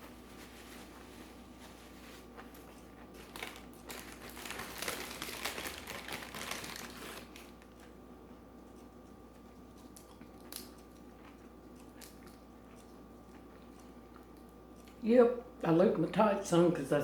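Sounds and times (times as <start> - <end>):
packaging crinkling: 1.9 - 7.9.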